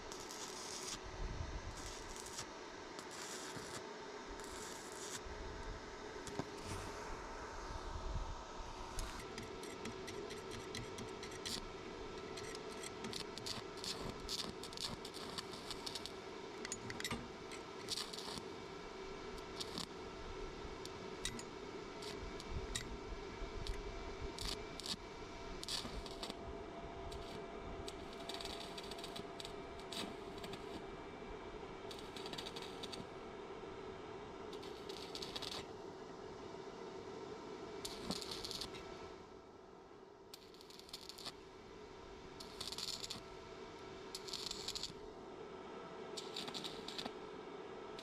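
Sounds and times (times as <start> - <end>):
steady hum: 0.0 - 48.0
clicks and scrapes on metal: 9.0 - 11.6, 15.7 - 18.3.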